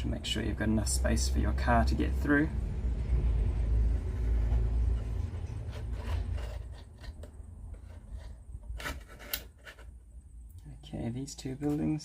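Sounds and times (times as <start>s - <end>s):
wood rubbing and scraping: 3.8s - 10.1s.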